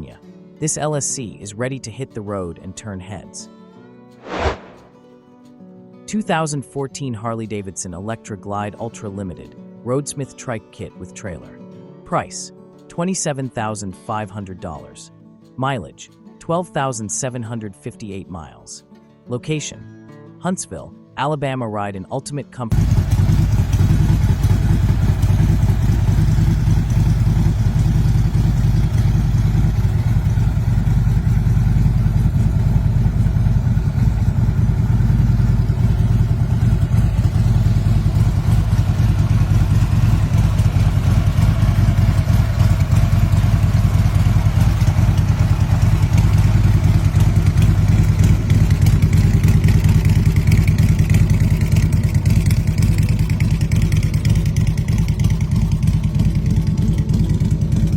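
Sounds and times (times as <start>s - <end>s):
motorcycle engine idling: 22.7s - 57.9s.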